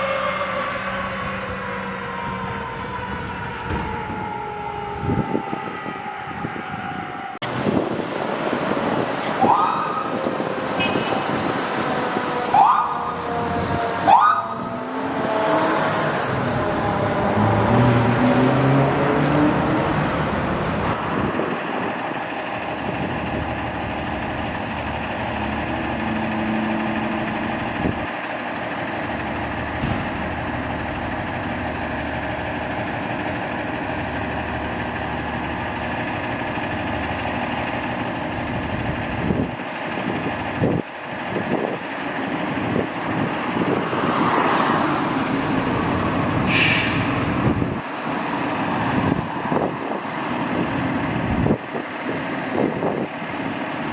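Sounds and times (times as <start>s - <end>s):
diesel engine running: 0.6s - 53.9s
air brakes hissing: 46.4s - 47.3s.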